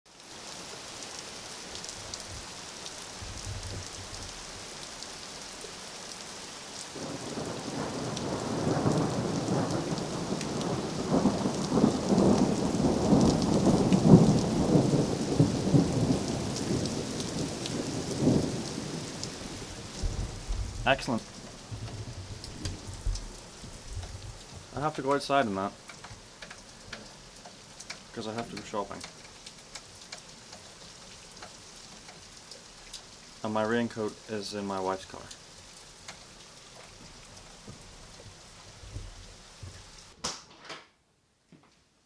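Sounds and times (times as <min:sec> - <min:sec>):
steady rain: 0:00.1 - 0:40.2
thunder rumbling: 0:07.0 - 0:25.8.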